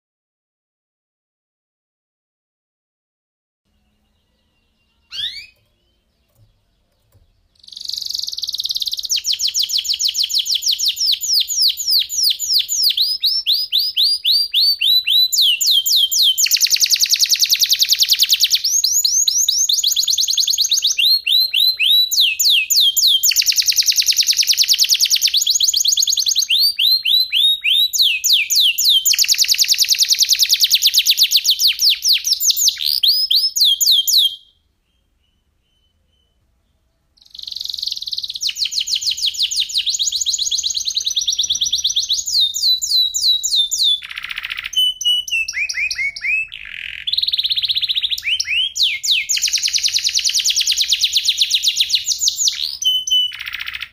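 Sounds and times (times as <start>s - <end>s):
canary singing trills: 3.7s - 53.9s.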